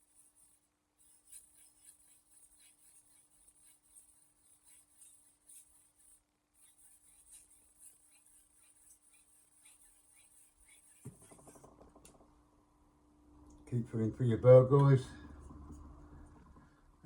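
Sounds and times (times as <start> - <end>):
knife rubbing on whetstone: 0.0 - 11.6
faint steady hum: 4.8 - 17.0.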